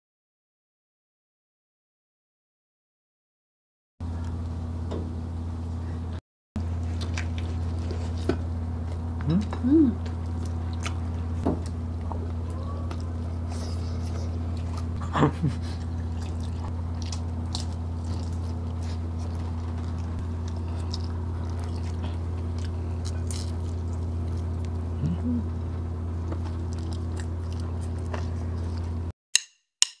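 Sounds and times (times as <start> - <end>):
low hum: 4.0 - 29.1
people chewing food: 6.6 - 29.1
short vocal sound: 9.2 - 10.0, 24.9 - 25.6.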